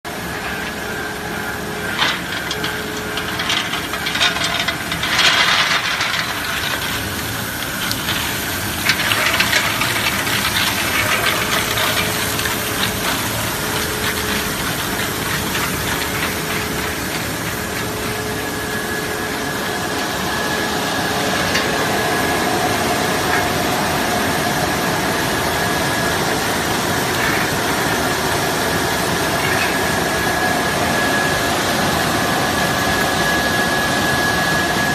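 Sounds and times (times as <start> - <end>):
hissing wash noise: 0.1 - 34.9
washing machine motor hum: 0.1 - 34.9
clattering: 1.9 - 20.1, 26.8 - 28.0, 29.2 - 30.5.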